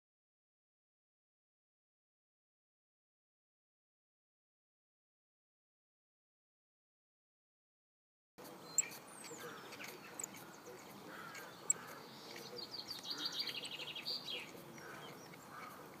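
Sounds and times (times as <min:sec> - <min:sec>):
birds chirping and singing: 0:08.4 - 0:16.0
sharp clicks: 0:08.8 - 0:13.8.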